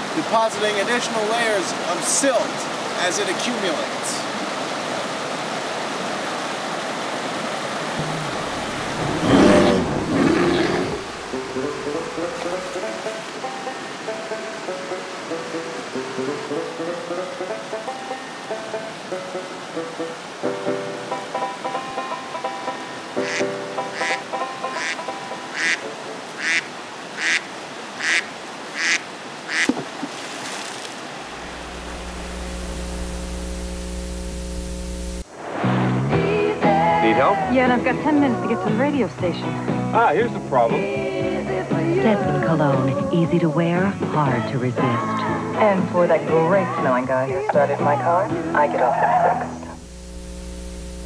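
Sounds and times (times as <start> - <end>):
river rushing over rapids: 0.0 - 23.2
low steady hum: 8.0 - 10.2, 31.3 - 35.2, 49.7 - 51.0
pitched multi-tone sound: 8.0 - 10.2
duck quacking: 23.2 - 29.7.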